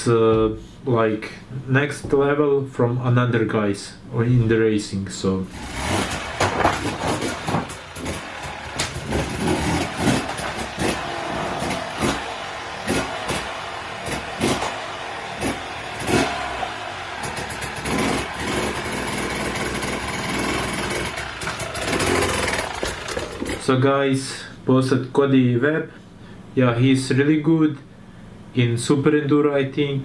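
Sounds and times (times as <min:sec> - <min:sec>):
dirt bike engine revving: 0:05.5 - 0:23.7.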